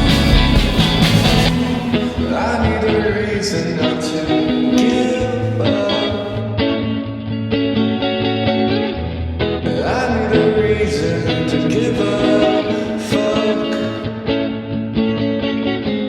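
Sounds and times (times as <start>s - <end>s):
cymbal crashes: 0.0s - 2.5s
band music: 0.0s - 5.1s
sliding lead melody: 0.0s - 10.6s.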